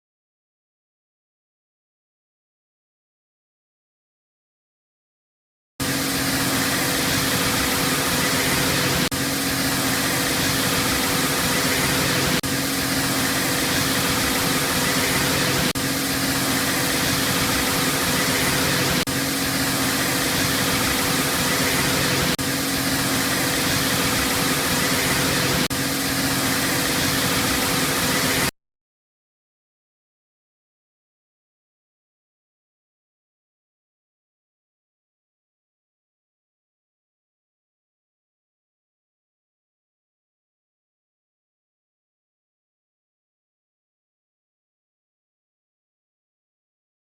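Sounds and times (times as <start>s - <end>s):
mechanical hum: 5.8s - 28.5s.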